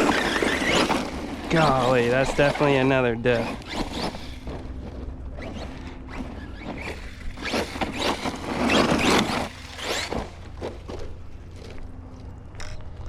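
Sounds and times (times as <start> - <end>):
gravel crunching and scattering: 0.0 - 13.0.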